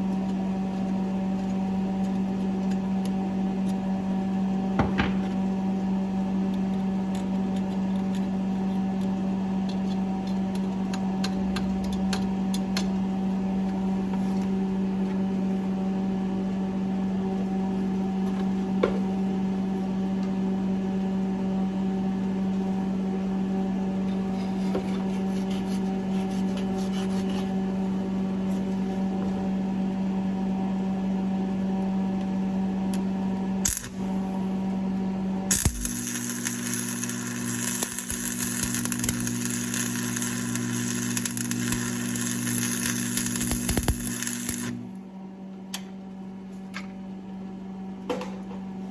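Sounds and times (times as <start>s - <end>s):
welder electrical hum: 0.0s - 48.9s
welding arc crackling: 33.6s - 34.6s, 35.5s - 45.0s.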